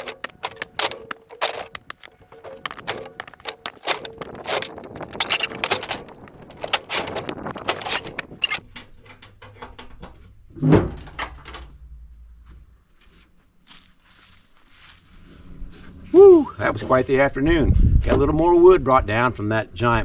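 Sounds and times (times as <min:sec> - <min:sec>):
firewood knocking and clattering: 0:00.0 - 0:08.6.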